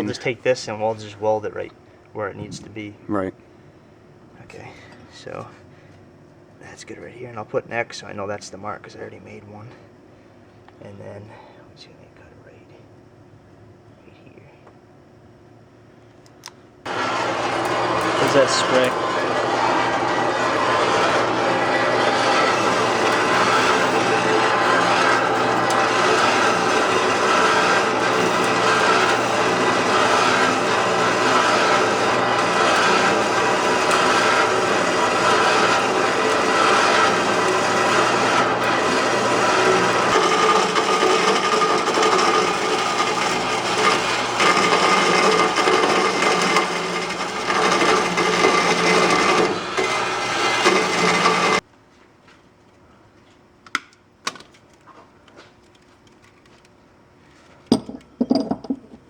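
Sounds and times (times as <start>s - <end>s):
power tool cutting metal pipe: 16.9s - 51.6s.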